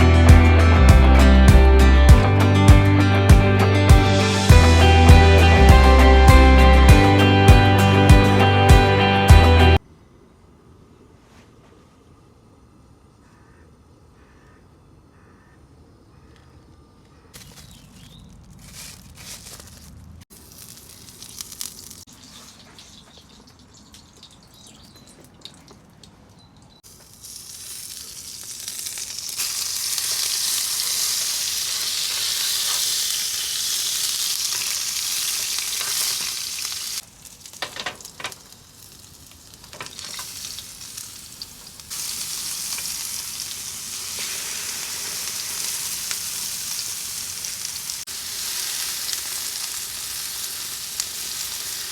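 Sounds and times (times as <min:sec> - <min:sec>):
food sizzling in a pan: 0:20.3 - 0:23.2, 0:26.8 - 0:51.9.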